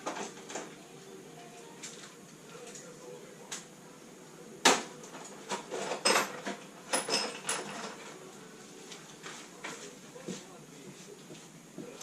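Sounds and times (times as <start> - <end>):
metal tools being handled: 5.0 - 8.2
metal clinks and rattles: 5.2 - 8.1.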